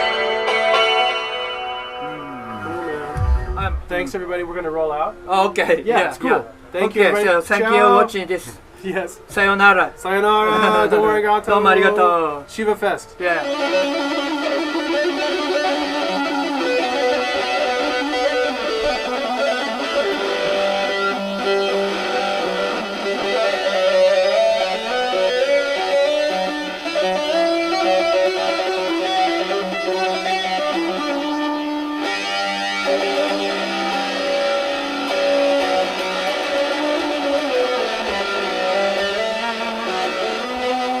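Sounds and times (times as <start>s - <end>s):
heavy metal style lute playing: 0.0s - 4.9s, 13.3s - 41.0s.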